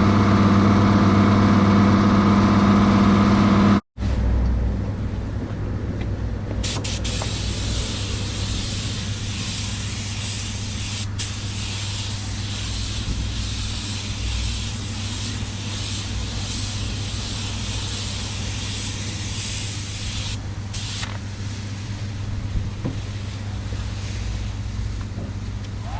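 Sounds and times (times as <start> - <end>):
spray gun hissing: 6.6 - 22.0.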